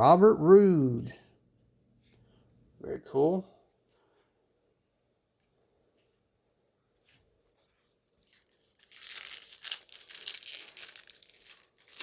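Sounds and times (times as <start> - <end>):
crinkling packaging rustle: 7.5 - 12.0.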